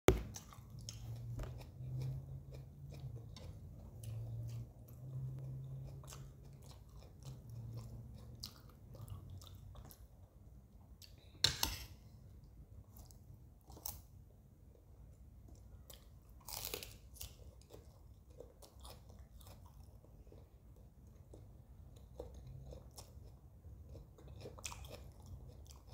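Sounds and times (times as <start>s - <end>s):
crunching lettuce leaves: 16.4s - 17.8s.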